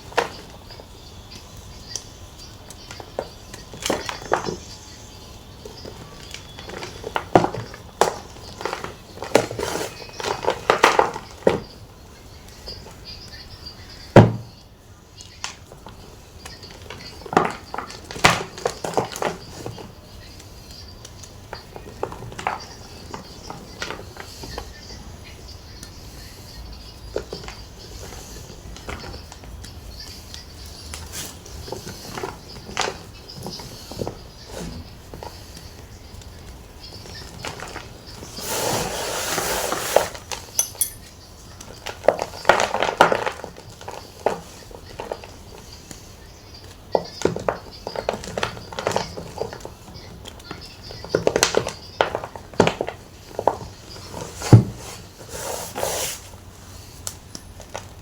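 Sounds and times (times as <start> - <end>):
chalk crumbling and rustling: 37.6 - 41.2, 53.4 - 57.2.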